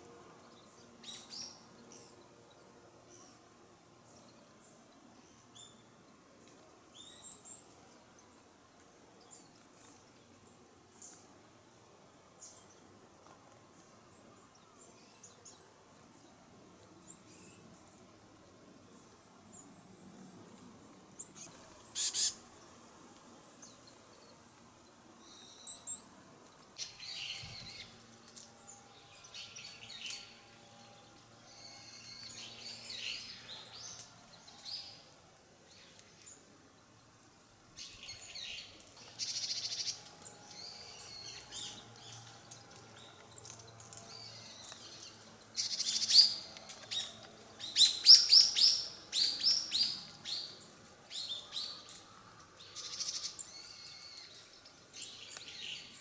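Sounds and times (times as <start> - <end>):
small birds chirping: 21.2 - 22.7, 37.3 - 56.0.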